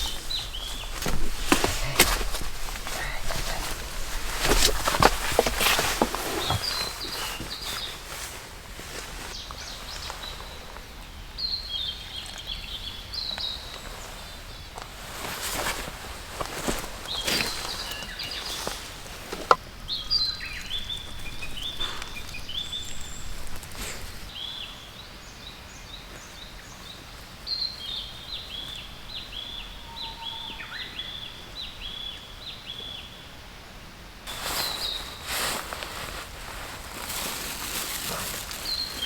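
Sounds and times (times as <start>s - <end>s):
faint outdoor background noise: 0.0s - 39.0s
small bird chirping: 19.8s - 24.8s.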